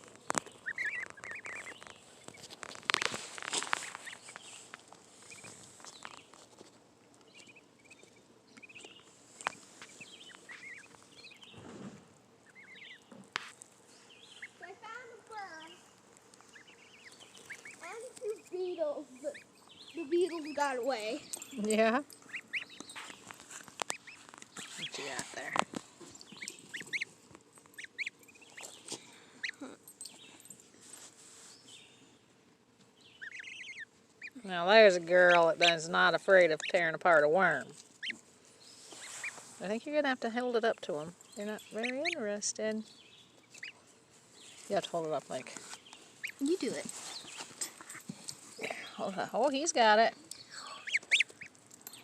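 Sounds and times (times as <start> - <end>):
footsteps on ground: 0.0 - 6.8
goslings peeping: 0.0 - 11.7, 12.3 - 14.8, 15.8 - 30.3, 32.9 - 52.0.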